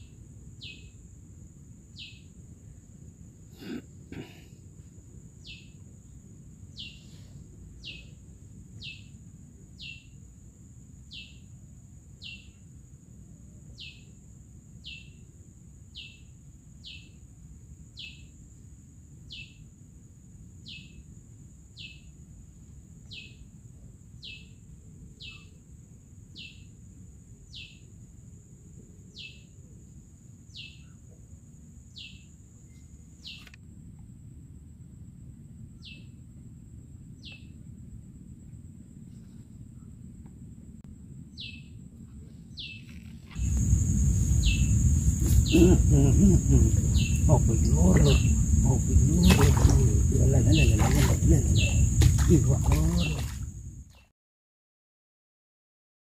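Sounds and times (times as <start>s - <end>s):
low rumble: 37.8s - 53.6s
high-pitched whine: 41.6s - 52.3s
bird calling: 42.5s - 53.4s.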